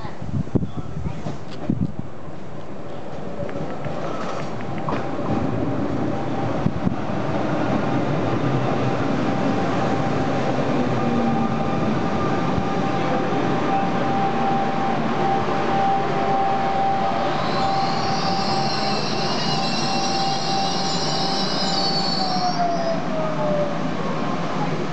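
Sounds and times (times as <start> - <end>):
train rumbling with a whine: 1.1 - 24.9
wheel and brake squeal: 17.2 - 23.0.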